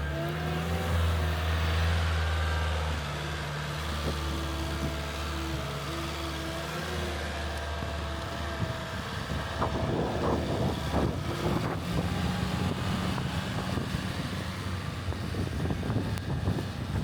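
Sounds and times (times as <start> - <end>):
storm wind buffeting microphone: 8.6 - 17.0.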